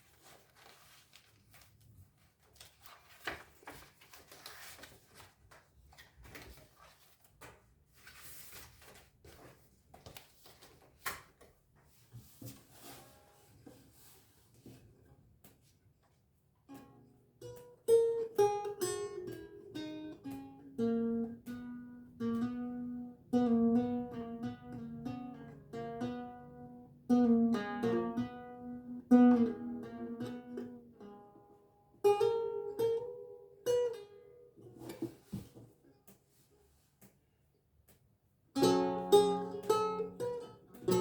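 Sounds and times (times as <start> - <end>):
lute plucked notes and chords: 16.8 - 31.2.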